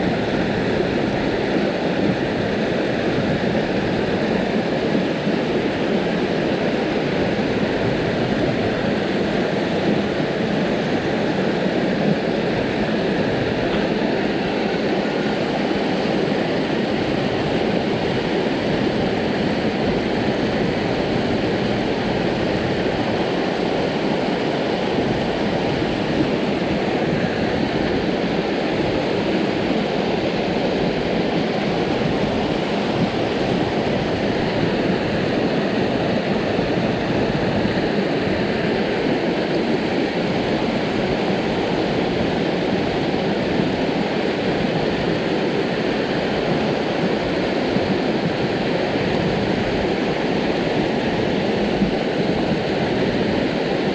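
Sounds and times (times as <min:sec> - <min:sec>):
stream rushing over rocks: 0:00.0 - 0:53.9.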